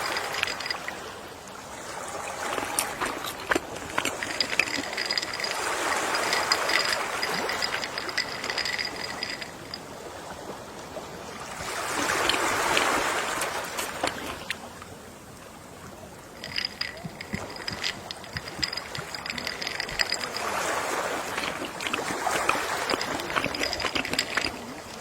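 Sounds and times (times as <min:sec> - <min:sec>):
ocean waves washing ashore: 0:00.0 - 0:25.0.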